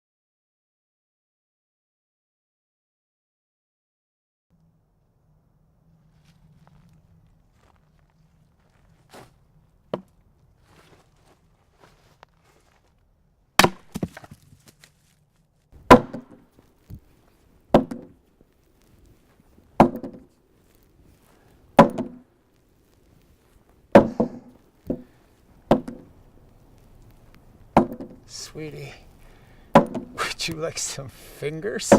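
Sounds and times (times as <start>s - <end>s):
chopping wood: 13.6s - 14.9s, 15.8s - 17.1s, 17.7s - 18.2s, 19.8s - 20.3s, 21.8s - 22.2s, 23.9s - 26.1s, 27.7s - 28.2s, 29.7s - 30.3s.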